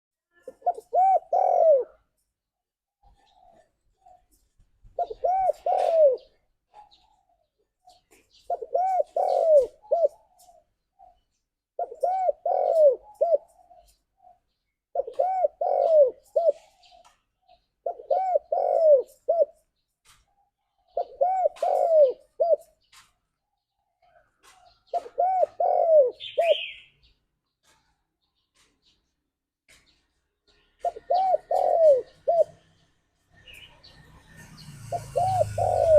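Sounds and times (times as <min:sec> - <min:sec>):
dove cooing: 0:00.4 - 0:02.1, 0:03.0 - 0:11.2, 0:11.8 - 0:17.2, 0:17.8 - 0:19.7, 0:20.8 - 0:22.9, 0:24.0 - 0:26.9, 0:30.8 - 0:32.7, 0:33.4 - 0:35.9.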